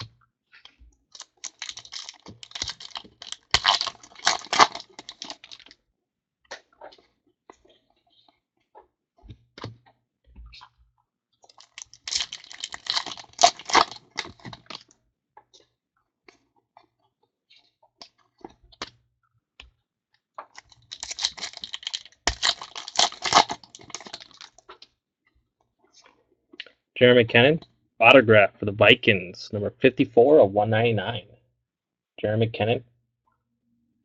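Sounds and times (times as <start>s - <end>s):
card packs crinkling and ripping: 1.2s - 5.7s, 11.6s - 14.8s, 20.5s - 24.6s.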